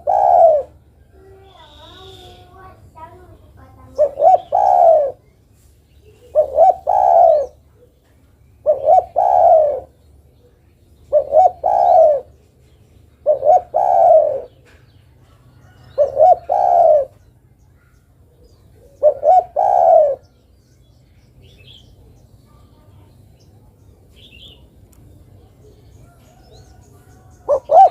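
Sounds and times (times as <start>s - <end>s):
dove cooing: 0.0s - 2.6s, 3.8s - 5.3s, 6.1s - 8.0s, 8.6s - 12.5s, 13.1s - 17.3s, 18.3s - 20.4s, 25.4s - 27.9s.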